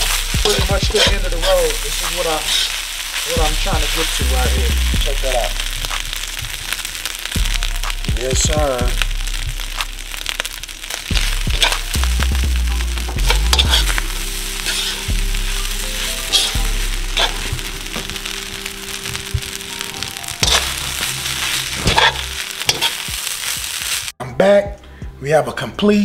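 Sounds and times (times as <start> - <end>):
metal spoon scraping a pan: 0.0 - 4.1, 13.5 - 14.0, 14.6 - 15.1, 16.0 - 18.1, 19.9 - 24.0
rice sizzling in a wok: 0.0 - 24.2.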